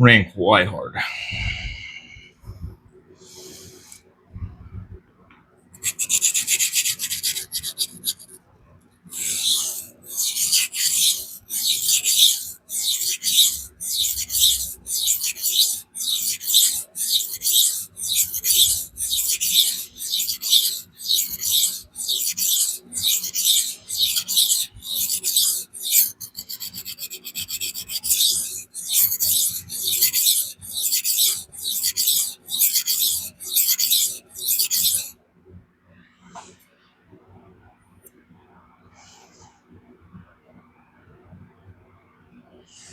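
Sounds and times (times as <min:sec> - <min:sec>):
knife scraping on sharpening stone: 0:05.8 - 0:08.4, 0:09.1 - 0:35.1.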